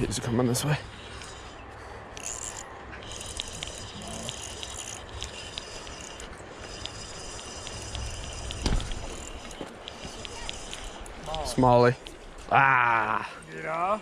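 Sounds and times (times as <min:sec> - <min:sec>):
steady background noise: 0:00.0 - 0:14.0
fishing reel clicking: 0:00.9 - 0:12.2.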